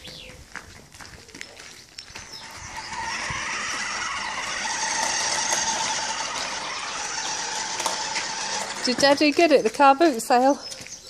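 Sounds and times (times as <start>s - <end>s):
toy truck electric motor whirring: 2.2s - 9.3s.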